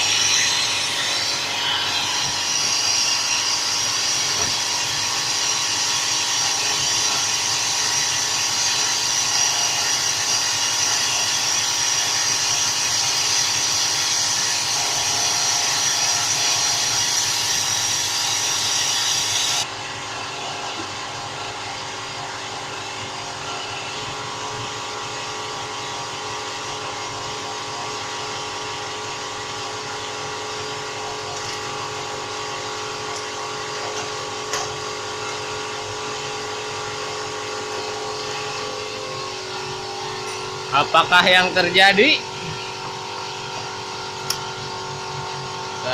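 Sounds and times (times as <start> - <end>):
vacuum machine hissing: 0.0 - 9.3, 10.0 - 25.9, 26.6 - 45.9.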